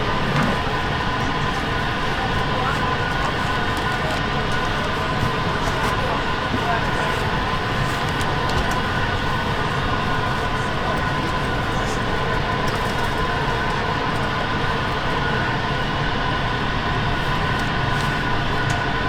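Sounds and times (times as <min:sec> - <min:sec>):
airliner cabin hum and rushing air: 0:00.0 - 0:19.0
constant whine: 0:00.0 - 0:19.0.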